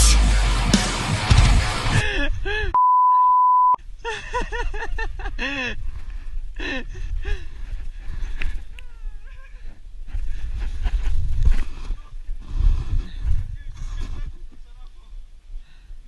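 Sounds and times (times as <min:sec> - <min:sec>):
steady single-pitch beep: 0:02.8 - 0:03.8.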